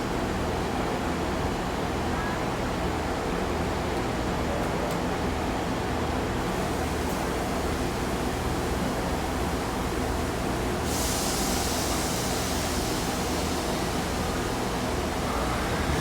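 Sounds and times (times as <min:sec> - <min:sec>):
hiss: 0:06.5 - 0:16.0
bright hiss: 0:10.9 - 0:16.0.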